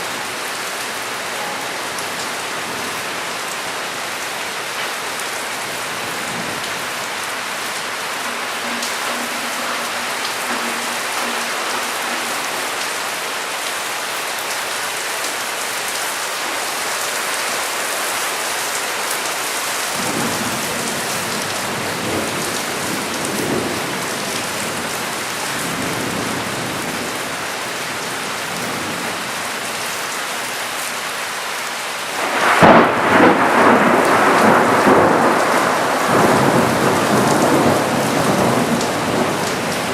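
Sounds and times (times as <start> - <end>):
heavy rain falling: 0.0 - 39.9
thunder rumbling: 5.6 - 13.6, 32.2 - 39.7
loud thunderclap: 8.2 - 13.2, 32.2 - 39.4.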